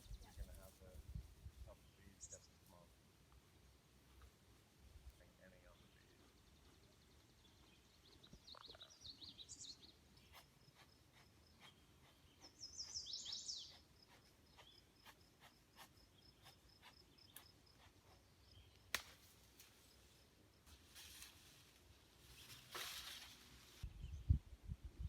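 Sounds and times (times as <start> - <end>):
songbird chirping: 0.0 - 25.0.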